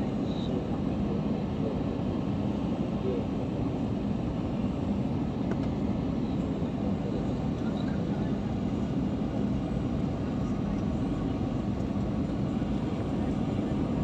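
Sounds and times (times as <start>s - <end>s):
airliner cabin engine rumble: 0.0s - 14.0s.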